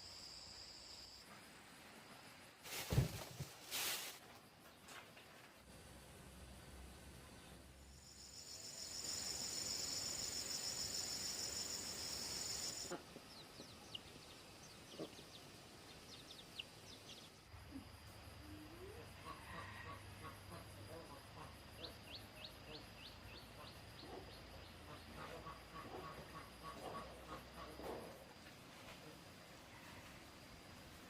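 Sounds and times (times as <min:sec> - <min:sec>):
faint insect hum: 0:00.0 - 0:31.0
insect trilling buzz: 0:07.9 - 0:12.9.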